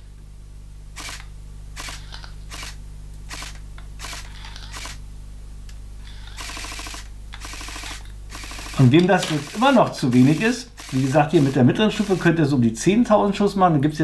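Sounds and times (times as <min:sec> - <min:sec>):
steady low hum: 0:00.0 - 0:14.0
rod scratching through bore: 0:06.0 - 0:12.4.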